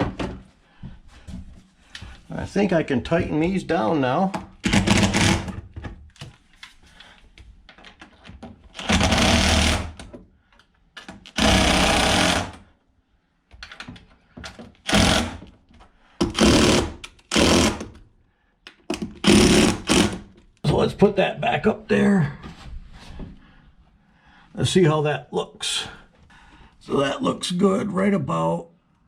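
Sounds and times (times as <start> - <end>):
power drill driving screws: 4.6 - 5.6, 8.8 - 10.0, 11.3 - 12.6, 14.8 - 15.4, 16.3 - 18.0, 19.2 - 20.3.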